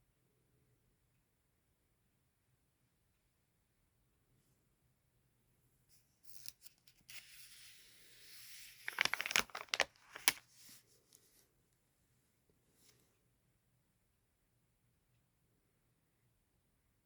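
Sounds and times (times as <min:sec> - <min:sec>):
paper rustling: 0:06.2 - 0:11.4
sticker peeling off backing: 0:08.4 - 0:10.4.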